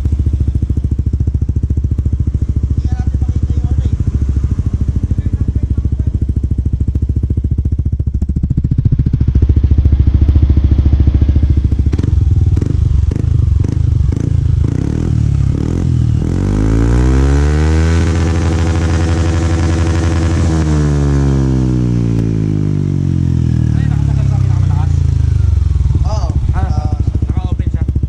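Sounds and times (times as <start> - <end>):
scooter engine revving: 0.0 - 28.0.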